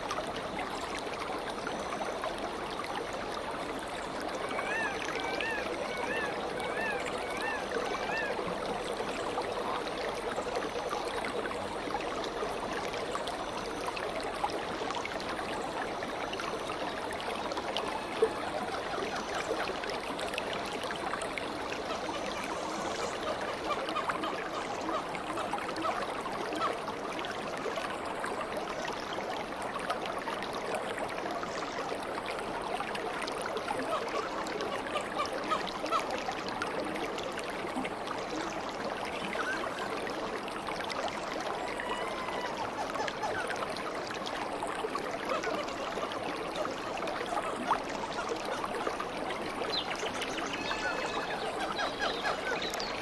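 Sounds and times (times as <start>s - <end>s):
stream water babbling: 0.0s - 53.0s
bird warbling: 39.3s - 39.9s.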